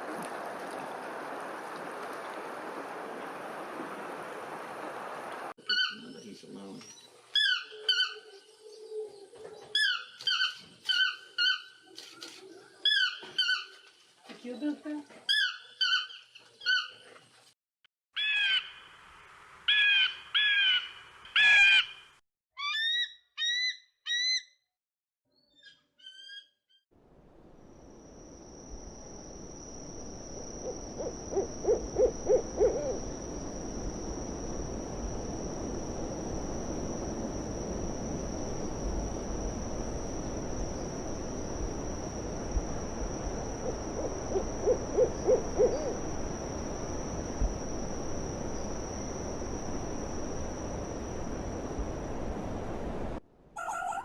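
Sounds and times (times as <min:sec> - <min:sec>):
owl hooting: 0:30.4 - 0:33.2, 0:43.4 - 0:46.1, 0:53.6 - 0:54.0.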